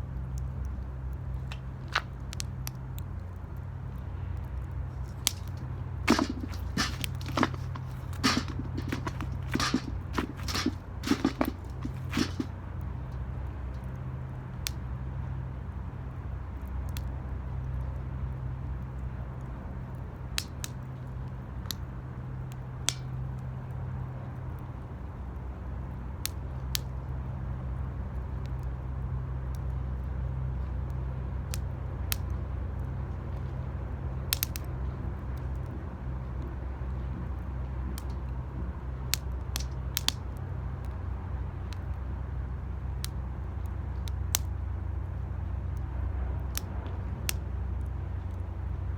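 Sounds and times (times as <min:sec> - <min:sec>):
steady low rumble: 0:00.0 - 0:15.0
wood fire crackling and popping: 0:00.2 - 0:14.0, 0:19.9 - 0:23.5, 0:29.5 - 0:48.5.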